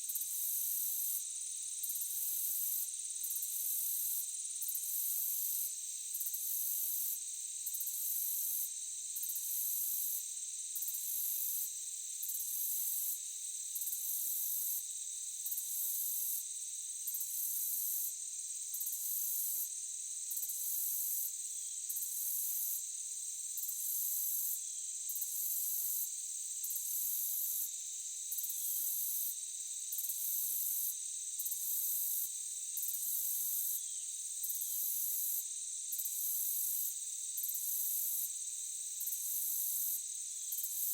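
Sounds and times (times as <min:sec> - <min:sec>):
crickets trilling: 0:30.8 - 0:38.2.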